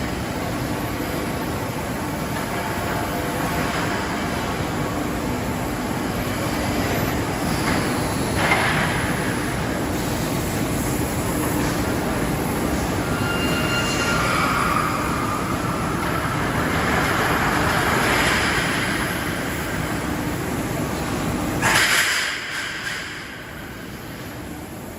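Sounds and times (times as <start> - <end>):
industrial machine noise: 0.0 - 24.9
high metallic squeals: 12.8 - 17.1.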